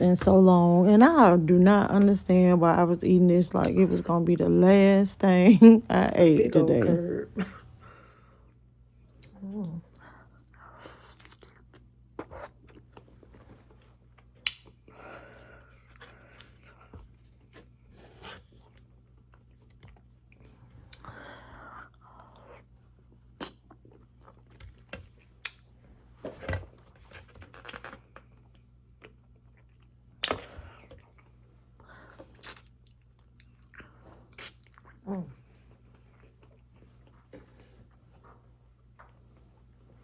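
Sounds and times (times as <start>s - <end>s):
chewing and mouth sounds: 9.1s - 25.7s, 27.5s - 31.4s, 32.0s - 38.5s
mouth clicks and smacks: 34.3s - 34.9s.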